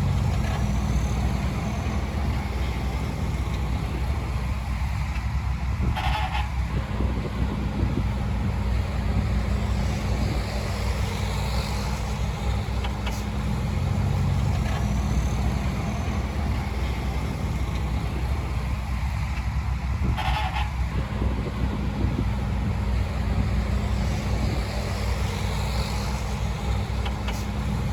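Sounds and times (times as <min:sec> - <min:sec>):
heavy diesel engine running: 0:00.0 - 0:27.9.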